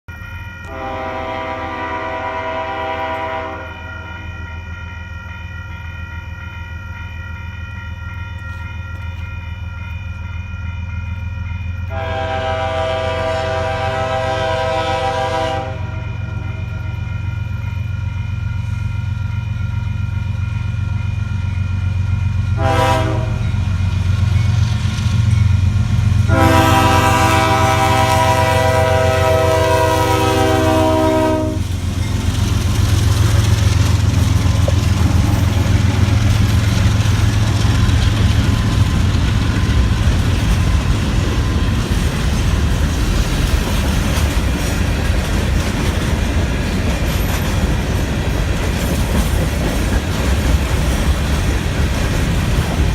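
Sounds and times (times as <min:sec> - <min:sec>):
diesel locomotive engine drone: 0:00.1 - 0:52.9
train horn blasts: 0:00.6 - 0:04.5, 0:11.8 - 0:17.0, 0:22.5 - 0:23.7, 0:26.2 - 0:31.8
train wheels clacking over rail joints: 0:30.8 - 0:52.9.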